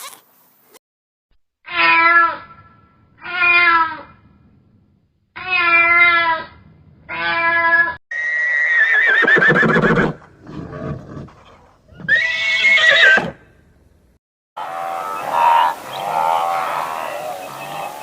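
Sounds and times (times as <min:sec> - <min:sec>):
horse whinnying: 0:07.1 - 0:13.4.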